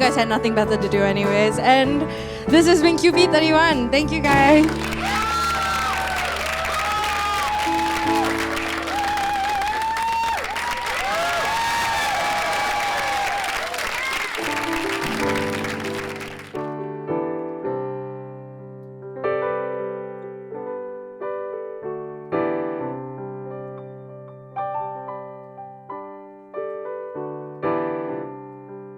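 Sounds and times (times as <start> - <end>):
slow solo piano music: 0.0 - 9.7, 14.4 - 28.9
applause: 4.3 - 16.8.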